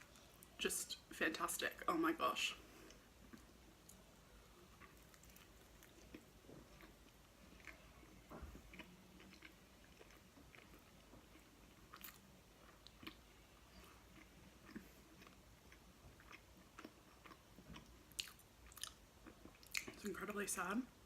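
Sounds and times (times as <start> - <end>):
chewing and biting pizza: 4.6 - 20.0.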